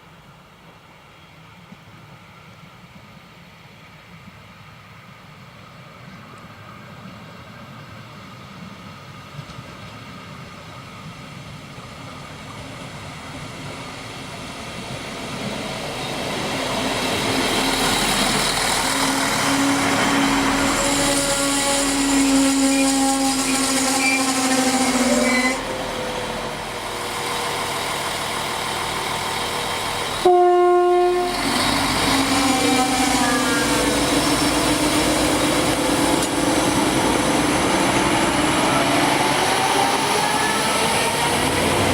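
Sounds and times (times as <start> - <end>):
train approaching with whine: 0.0 - 41.9
train horn blast: 18.8 - 25.8, 30.2 - 36.3.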